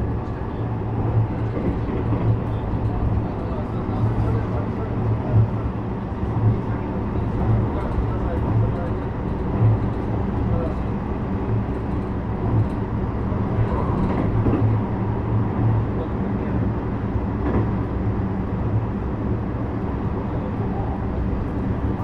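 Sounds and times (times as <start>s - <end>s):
train wheels rolling on rails: 0.0s - 15.8s.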